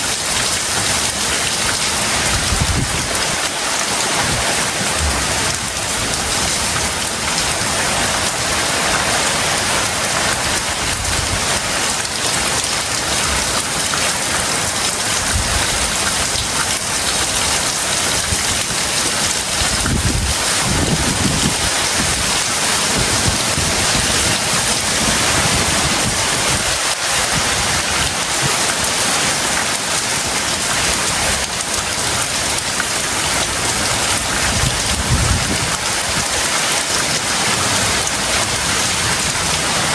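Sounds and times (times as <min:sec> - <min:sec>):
heavy rain pouring: 0:00.0 - 0:39.9
low thunder rumbles: 0:33.3 - 0:36.4.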